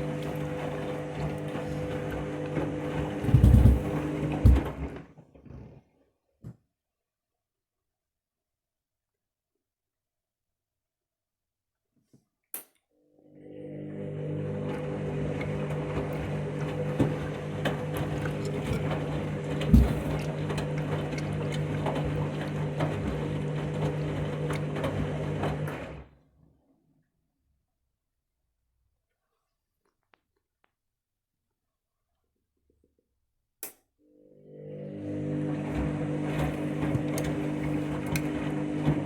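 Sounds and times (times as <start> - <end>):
washing machine motor humming: 0.0 - 5.1, 13.2 - 26.2, 34.2 - 39.0.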